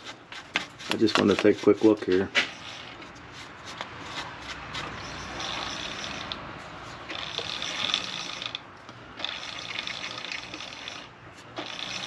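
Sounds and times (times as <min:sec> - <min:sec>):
rubbing and scraping on metal: 0:00.0 - 0:08.6.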